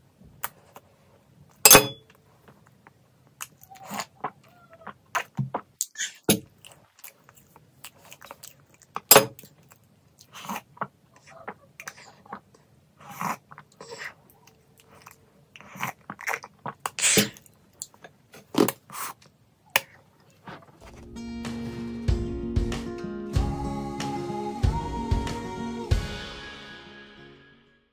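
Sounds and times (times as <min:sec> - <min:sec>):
close chewing with mouth clicks: 0:02.6 - 0:20.8.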